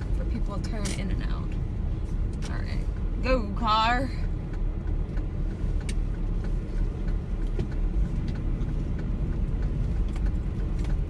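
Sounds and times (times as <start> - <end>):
car engine and road noise: 0.0 - 11.0
faint ticks: 4.1 - 11.0.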